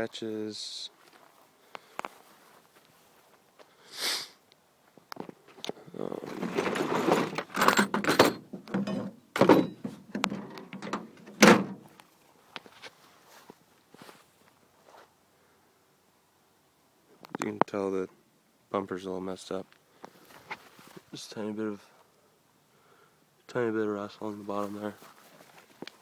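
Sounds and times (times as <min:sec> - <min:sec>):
rustling and clattering: 0:05.2 - 0:11.9
sharp knocks and thunks: 0:06.2 - 0:11.8.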